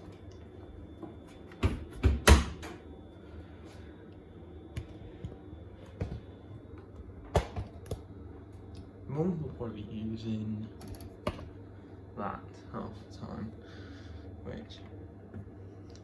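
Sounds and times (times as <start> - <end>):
washing machine door knocks: 1.6 - 2.7.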